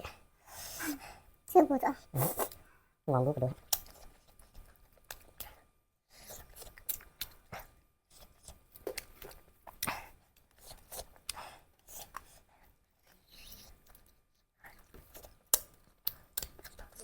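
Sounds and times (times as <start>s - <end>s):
chewing and crunching: 3.6s - 17.0s.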